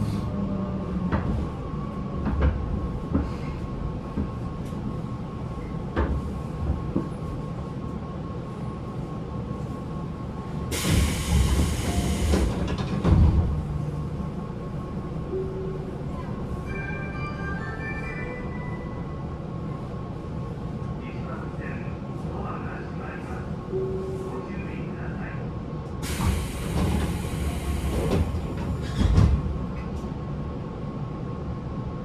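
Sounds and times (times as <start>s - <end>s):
air hiss: 10.7s - 12.6s, 26.0s - 28.6s.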